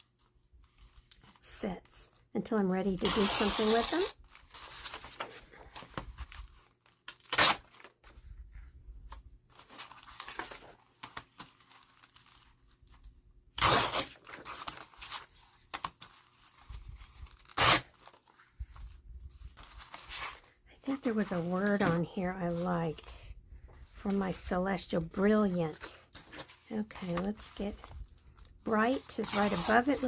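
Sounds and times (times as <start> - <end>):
paper rustling: 3.2 - 13.0, 25.7 - 30.0
paper tearing: 7.0 - 7.9, 13.6 - 15.3, 17.4 - 18.2, 29.1 - 30.0.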